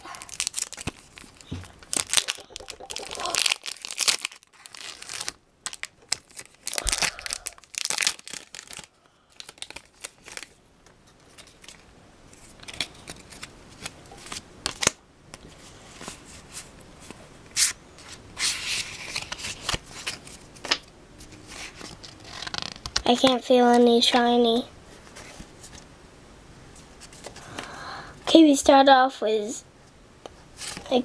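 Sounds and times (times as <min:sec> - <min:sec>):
foil wrapper tearing and crinkling: 0:00.0 - 0:10.6, 0:21.7 - 0:23.0.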